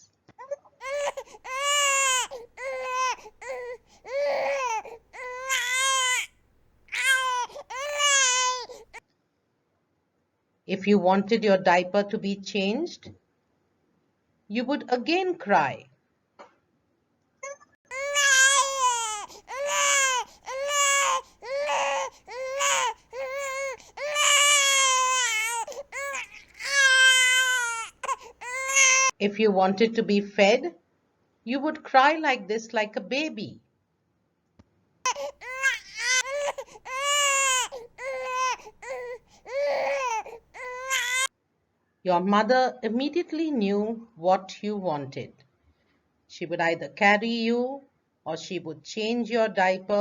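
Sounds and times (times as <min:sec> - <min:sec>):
baby crying: 0:00.8 - 0:06.3, 0:06.9 - 0:09.0, 0:17.4 - 0:29.1, 0:35.1 - 0:41.3.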